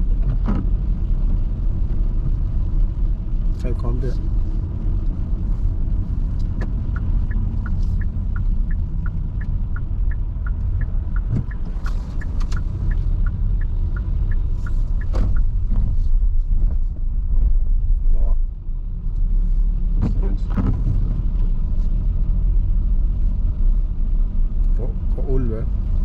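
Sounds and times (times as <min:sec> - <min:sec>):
turn signal ticking: 0:00.0 - 0:18.2
car road and engine rumble: 0:00.0 - 0:26.0.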